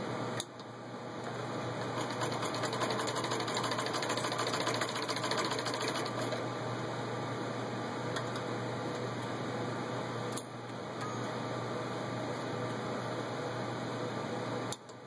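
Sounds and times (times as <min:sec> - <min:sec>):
sewing machine clatter: 0:01.8 - 0:06.4.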